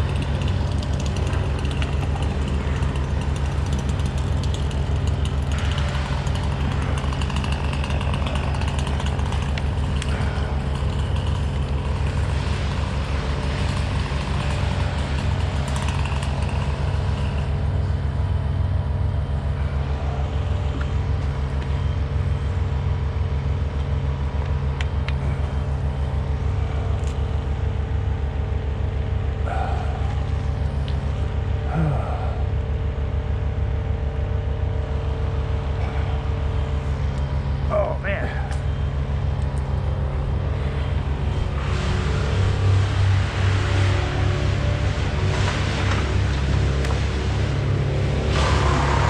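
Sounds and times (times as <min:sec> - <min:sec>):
engine running steadily: 0:00.0 - 0:49.0.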